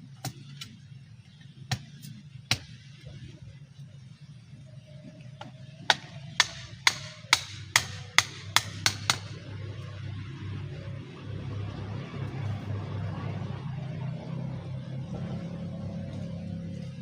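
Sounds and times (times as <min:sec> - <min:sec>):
wooden stake being struck: 0:05.4 - 0:09.4.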